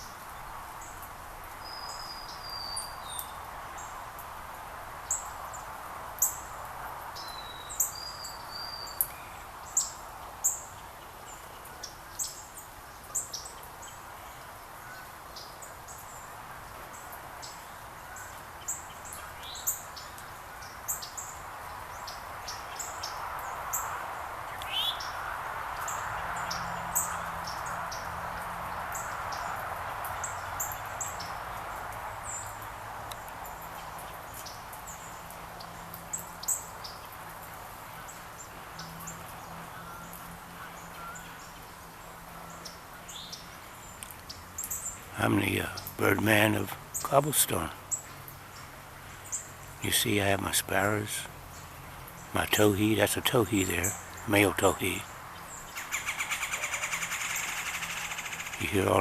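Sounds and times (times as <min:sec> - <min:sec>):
background hiss: 0:00.0 - 0:59.0
songbird chip calls: 0:01.6 - 0:04.0, 0:07.2 - 0:16.3, 0:17.4 - 0:25.2, 0:38.0 - 0:41.7, 0:42.4 - 0:59.0.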